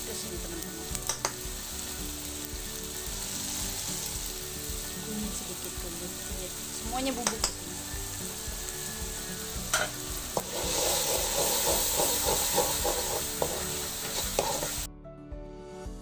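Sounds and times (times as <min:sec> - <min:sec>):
paste sizzling in a wok: 0:00.0 - 0:14.9
background music: 0:00.0 - 0:16.0
spoon knocking against pan: 0:07.1 - 0:07.7, 0:09.7 - 0:14.8.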